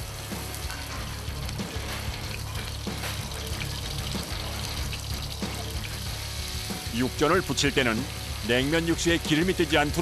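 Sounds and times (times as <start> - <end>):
background music: 0.0 - 10.0
meat sizzling in oil: 0.0 - 10.0.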